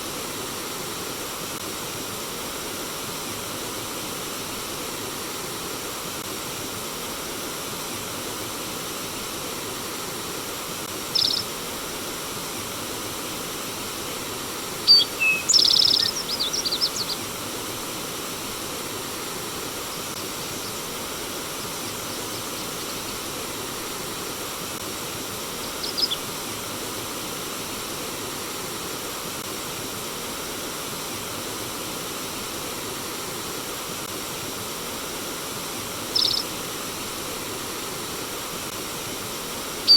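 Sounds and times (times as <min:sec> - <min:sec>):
flowing water rushing: 0:00.0 - 0:39.9
bird chirps: 0:11.1 - 0:11.5, 0:14.9 - 0:17.2, 0:25.6 - 0:26.3, 0:36.1 - 0:36.5.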